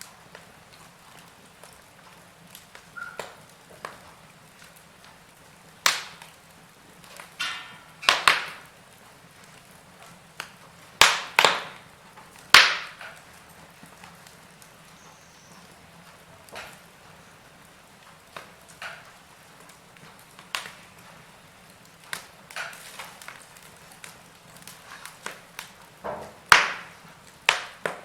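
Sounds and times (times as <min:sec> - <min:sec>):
logs crackling in fire: 0:00.0 - 0:28.0
sharp pops of burning wood: 0:00.0 - 0:28.0.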